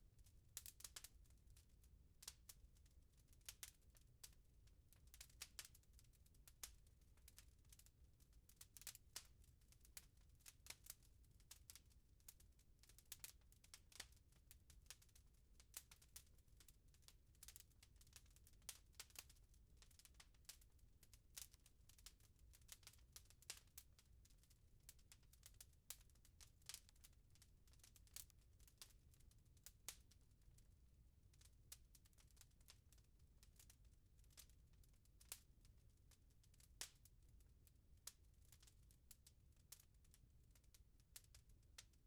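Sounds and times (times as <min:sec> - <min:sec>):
wood fire crackling: 0:00.6 - 0:01.6, 0:02.2 - 0:02.6, 0:03.5 - 0:04.4, 0:05.0 - 0:07.9, 0:08.6 - 0:24.5, 0:25.4 - 0:30.1, 0:35.1 - 0:35.5, 0:36.5 - 0:37.1, 0:38.0 - 0:39.3.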